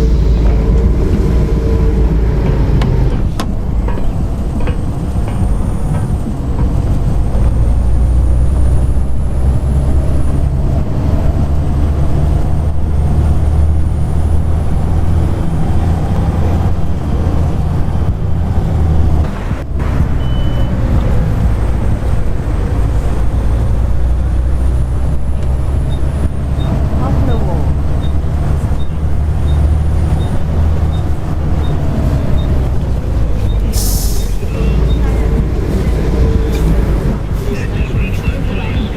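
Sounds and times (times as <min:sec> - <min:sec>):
high-pitched engine whine: 0:00.0 - 0:03.3
bus engine rumble: 0:00.0 - 0:38.9.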